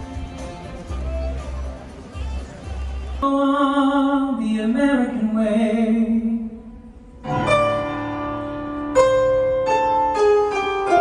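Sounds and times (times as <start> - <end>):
solo voice singing: 3.2 - 6.7.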